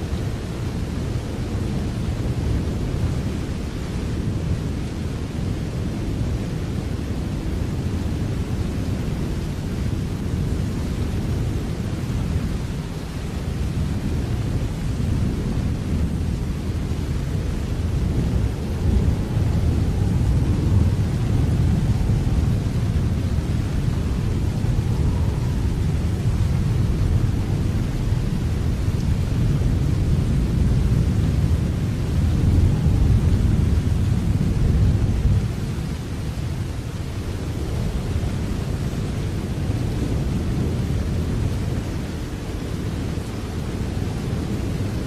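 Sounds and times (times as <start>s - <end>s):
steady rain: 0.0s - 45.0s
deep low rumble: 16.9s - 35.4s.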